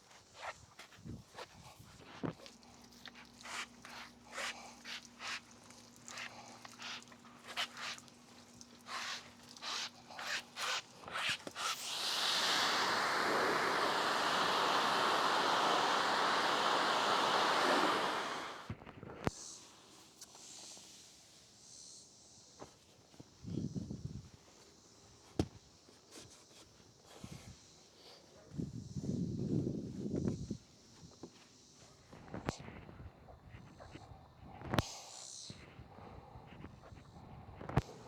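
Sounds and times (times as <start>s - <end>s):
rubbing sounds: 8.9s - 18.6s
pressure washer spraying water: 11.2s - 18.7s.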